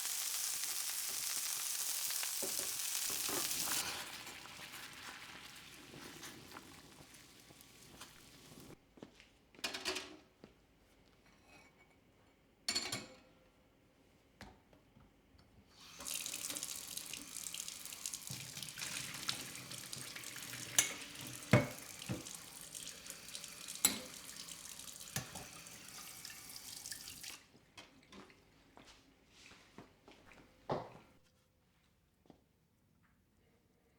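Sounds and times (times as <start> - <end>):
tap water running into sink: 0.0 - 8.8, 15.8 - 27.4
sharp knocks in sink: 21.5 - 22.3.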